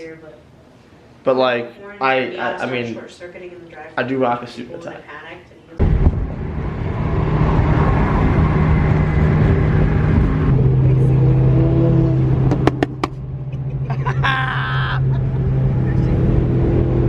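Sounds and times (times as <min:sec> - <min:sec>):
car engine droning: 0:05.8 - 0:17.0.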